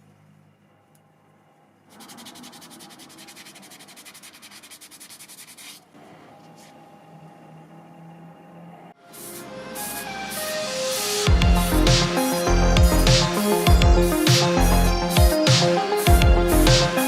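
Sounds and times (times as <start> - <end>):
hand sanding rubbing strokes: 1.9 - 5.9, 9.0 - 17.0.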